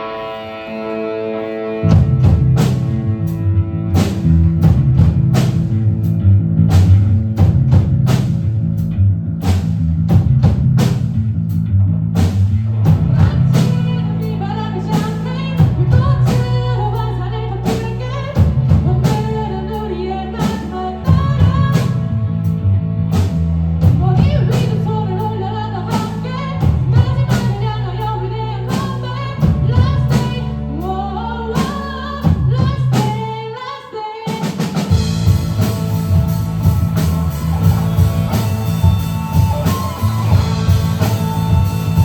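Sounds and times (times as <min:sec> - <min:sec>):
electric guitar: 0:00.0 - 0:33.2, 0:34.5 - 0:42.0
bass guitar: 0:00.0 - 0:33.6, 0:34.5 - 0:42.0
drum kit: 0:01.8 - 0:14.0, 0:14.9 - 0:16.8, 0:17.7 - 0:19.5, 0:20.4 - 0:22.2, 0:23.1 - 0:24.9, 0:25.9 - 0:27.8, 0:28.7 - 0:30.5, 0:31.6 - 0:33.4, 0:34.3 - 0:42.0.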